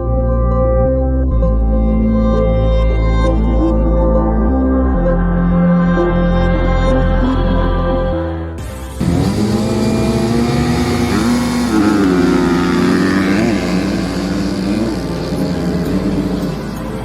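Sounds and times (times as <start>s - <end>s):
motocross bike engine revving: 8.6s - 17.0s.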